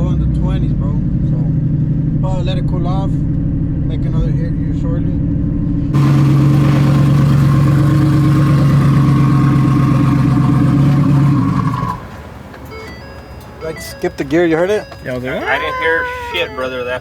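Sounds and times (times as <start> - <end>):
drag racing engines at full throttle: 5.2 - 12.2.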